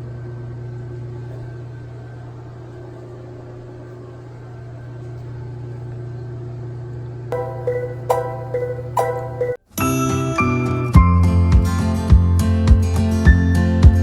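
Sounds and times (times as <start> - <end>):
bell-like chime notes: 7.4 - 9.6.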